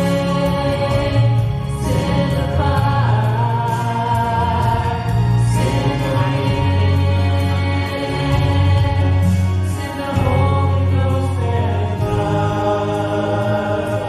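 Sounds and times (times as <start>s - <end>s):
instrumental accompaniment with bass: 0.0s - 14.0s
voices singing gospel: 0.0s - 14.0s.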